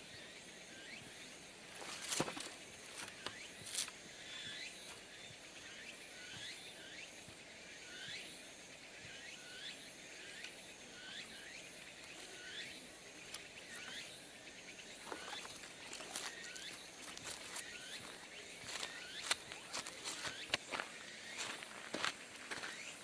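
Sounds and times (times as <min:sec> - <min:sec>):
faint high pulsing buzz: 0:00.0 - 0:23.0
insect rising chirp: 0:12.1 - 0:23.0.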